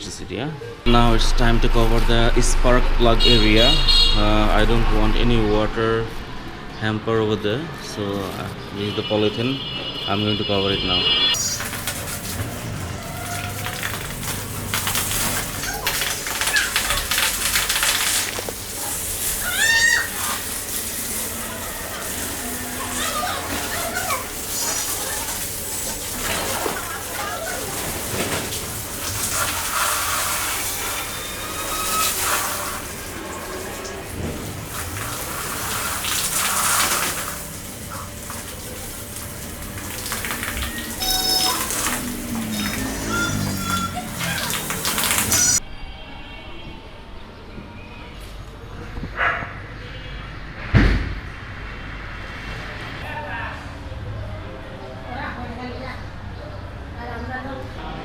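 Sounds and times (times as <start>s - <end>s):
water splashing onto motorcycle: 0.9s - 6.0s, 11.1s - 45.6s
plastic sheet crinkling: 11.4s - 45.6s
short high-pitched call: 41.0s - 45.6s.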